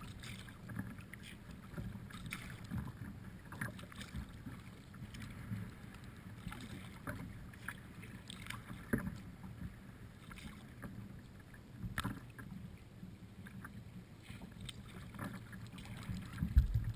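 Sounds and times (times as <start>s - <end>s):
water splashing from paddle strokes: 0.0s - 12.8s, 13.4s - 16.9s
steady low rumble: 16.5s - 16.9s.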